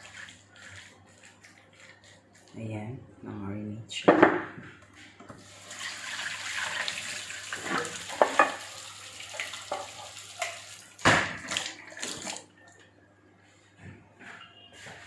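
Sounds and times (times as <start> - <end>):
water running from a tap: 0.0 - 0.9, 5.4 - 12.4
dishes clinking: 7.6 - 8.7.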